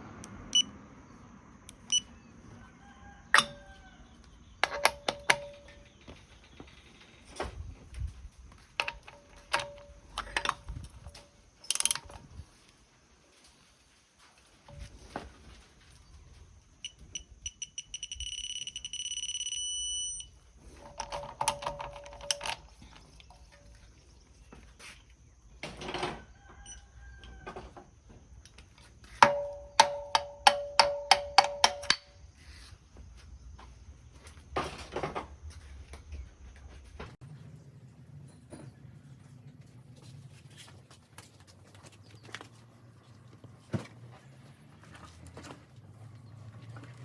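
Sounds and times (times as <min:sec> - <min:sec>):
torque adapter beeping: 0:01.7 - 0:02.1, 0:03.4 - 0:03.8, 0:04.6 - 0:05.9, 0:08.8 - 0:10.8, 0:11.6 - 0:12.2, 0:16.8 - 0:23.4, 0:29.2 - 0:32.1
ratchet wrench clicking: 0:04.6 - 0:05.8, 0:11.6 - 0:12.2, 0:16.8 - 0:22.7, 0:29.2 - 0:32.1.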